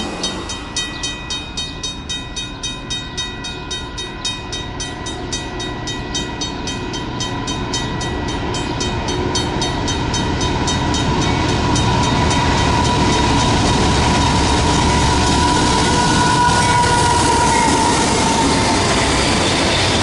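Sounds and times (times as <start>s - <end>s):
locomotive engine rumble: 0.0s - 20.0s
rail noise: 0.0s - 20.0s.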